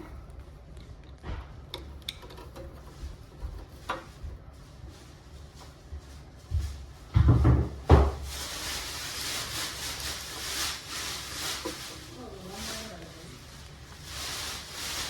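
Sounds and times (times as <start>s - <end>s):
steady hiss: 8.2s - 15.0s.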